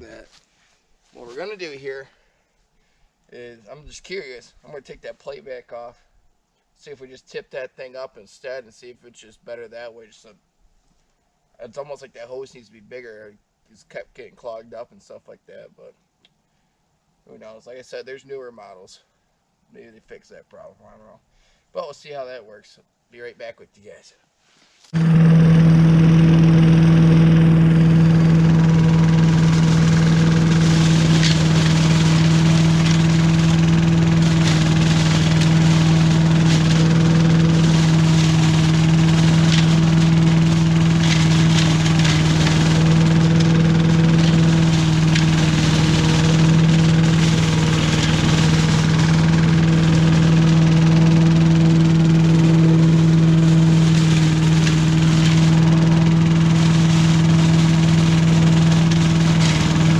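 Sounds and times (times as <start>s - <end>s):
leaf vacuum engine running: 24.9s - 59.9s.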